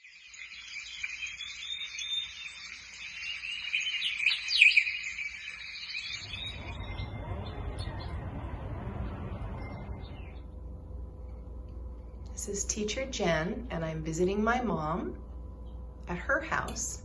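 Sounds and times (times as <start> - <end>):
songbirds chirping: 0.0 - 12.3
low rumble: 6.2 - 17.0.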